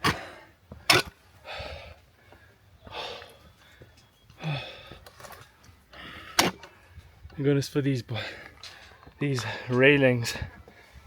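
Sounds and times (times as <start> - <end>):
man breathing hard: 1.4 - 5.2, 5.9 - 6.4, 8.1 - 11.0.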